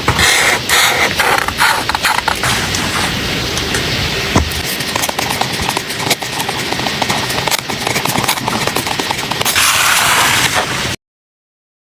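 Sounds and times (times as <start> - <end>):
paper rustling: 0.2 - 3.2, 4.5 - 10.8.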